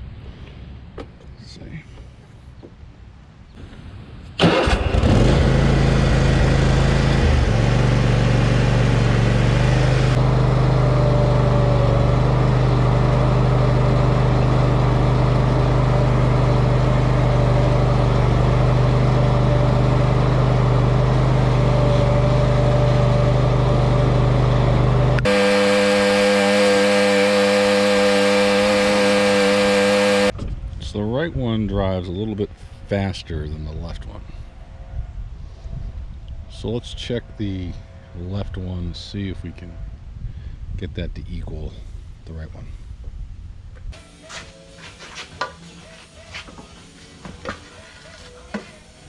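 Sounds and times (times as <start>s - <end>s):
mower engine running: 4.4s - 30.3s.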